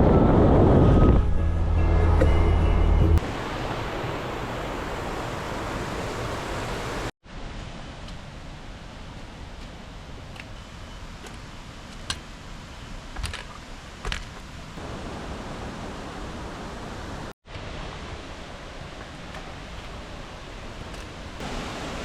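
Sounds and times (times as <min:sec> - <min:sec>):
falling water rushing: 0:03.2 - 0:09.0, 0:13.6 - 0:22.0.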